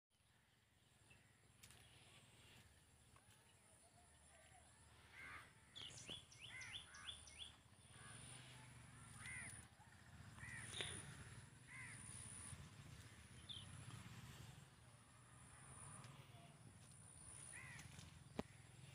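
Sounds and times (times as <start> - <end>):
bird chirps: 5.2 - 9.6.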